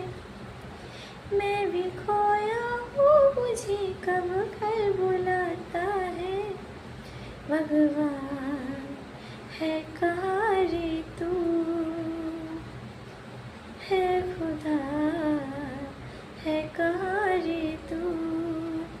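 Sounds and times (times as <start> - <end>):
woman singing unaccompanied: 0.0 - 0.2, 1.3 - 6.7, 7.5 - 12.8, 13.8 - 19.0.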